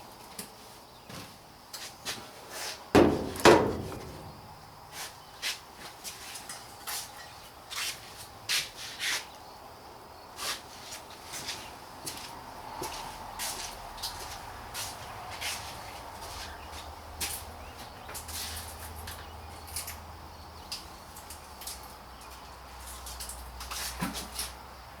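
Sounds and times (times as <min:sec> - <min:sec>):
loud metal clanks: 0:03.0 - 0:04.7.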